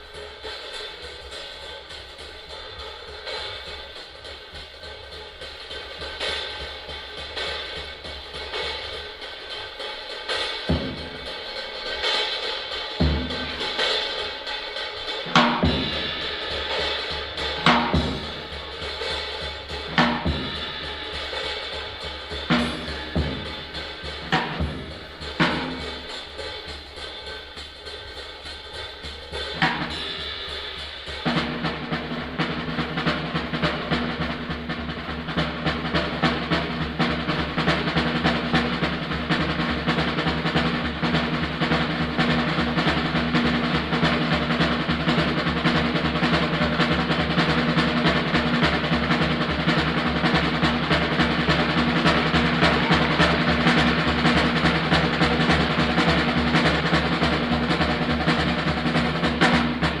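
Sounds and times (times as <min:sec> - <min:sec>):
bebop jazz band: 0:00.0 - 1:00.0
snare drum rolls: 0:00.0 - 1:00.0
bass drum strokes: 0:15.3 - 0:26.7, 0:29.6 - 1:00.0.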